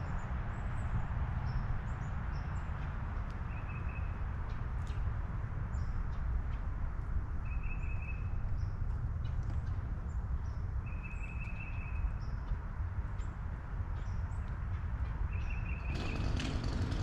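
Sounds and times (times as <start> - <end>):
wild birds chirping: 15.2 - 17.0.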